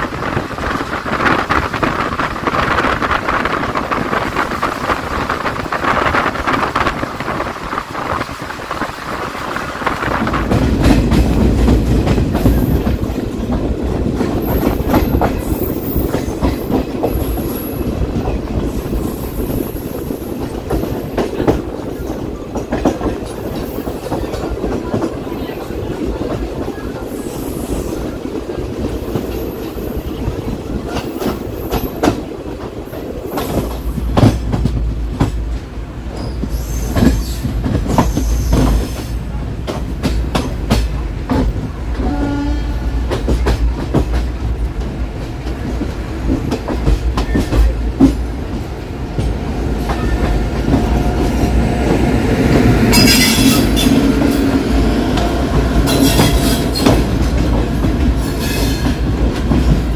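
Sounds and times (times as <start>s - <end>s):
wheels clacking over rail joints: 0.0s - 27.1s, 42.9s - 59.9s
train coach rumbling on rails: 0.0s - 59.9s
train horn blast: 42.0s - 43.2s.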